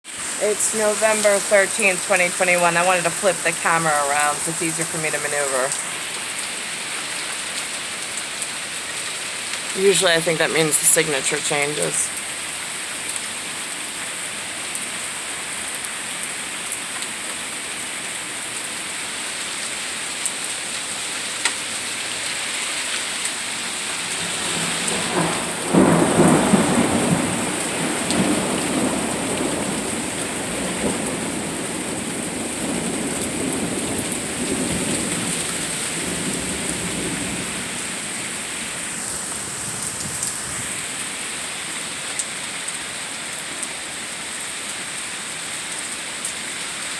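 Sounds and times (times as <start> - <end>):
steady rain falling: 0.0 - 46.9
thunder rolling: 24.1 - 40.8.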